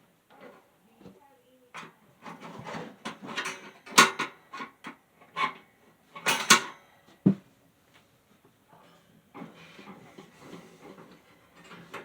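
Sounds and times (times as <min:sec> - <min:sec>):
knocks and clatters of hard parts: 0:01.8 - 0:07.5.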